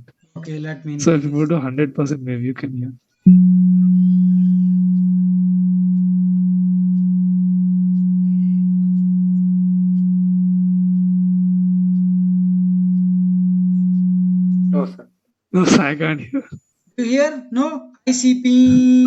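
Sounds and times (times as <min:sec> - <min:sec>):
low-pitched pure test tone: 0:03.3 - 0:15.0.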